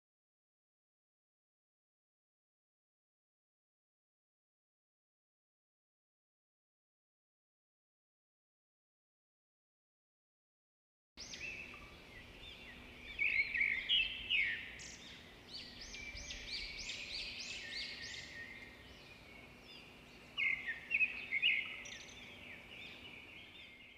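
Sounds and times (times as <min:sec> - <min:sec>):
small birds chirping: 0:11.2 - 0:23.9.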